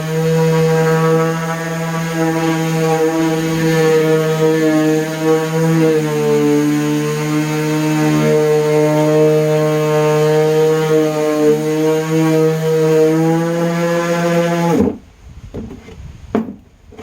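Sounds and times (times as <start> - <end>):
orbital sander running: 0.0 - 17.0
light knocks: 15.6 - 17.0.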